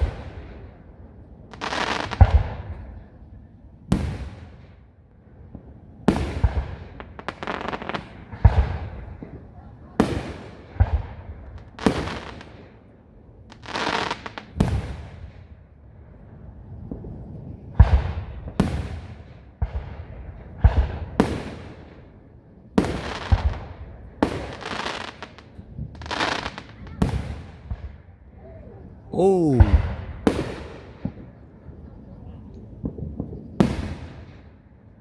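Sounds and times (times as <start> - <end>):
fireworks bangs and crackle: 1.5 - 2.8, 5.5 - 12.8, 13.5 - 15.6, 16.8 - 22.0, 22.8 - 28.0, 32.8 - 34.6.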